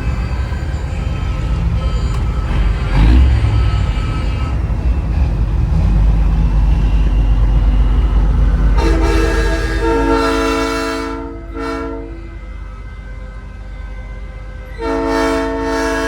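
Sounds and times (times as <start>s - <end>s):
diesel truck engine running: 0.0s - 10.5s
air horn multi-note chord: 8.7s - 13.4s, 14.8s - 16.0s.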